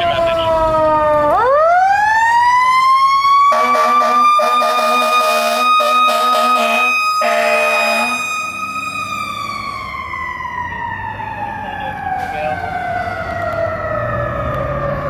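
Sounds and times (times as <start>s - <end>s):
mechanical siren wailing: 0.0s - 15.0s
air horn blasts: 3.5s - 8.4s.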